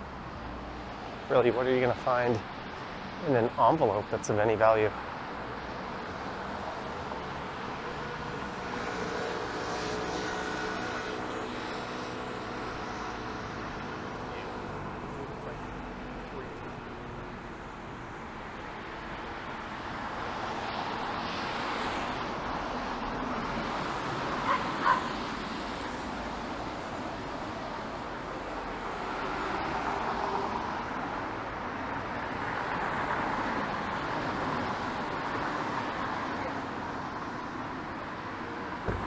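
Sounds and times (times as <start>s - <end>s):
traffic on wet pavement: 0.0s - 39.0s
dog barking: 24.4s - 25.2s.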